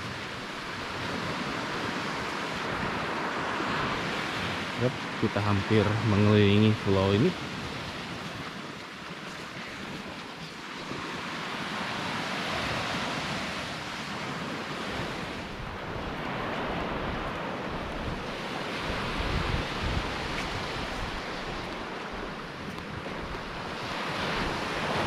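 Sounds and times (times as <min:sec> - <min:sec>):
sea waves washing onto beach: 0:00.0 - 0:25.0
wind buffeting microphone: 0:00.0 - 0:25.0.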